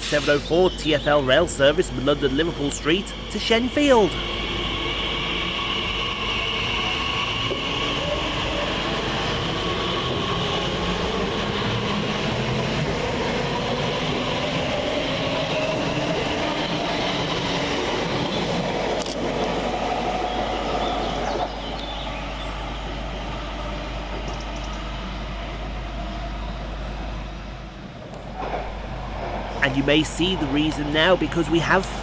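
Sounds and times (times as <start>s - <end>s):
train wheels running on rails: 1.4s - 26.0s.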